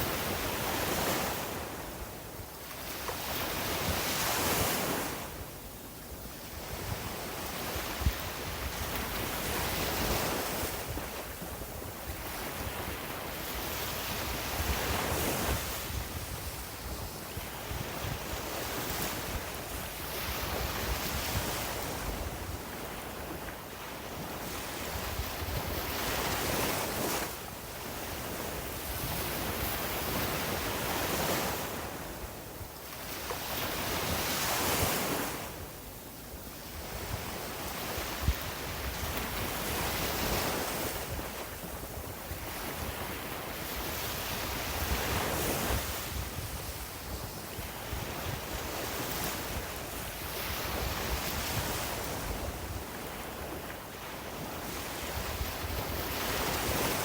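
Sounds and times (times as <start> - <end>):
wind buffeting microphone: 36.8 - 53.7.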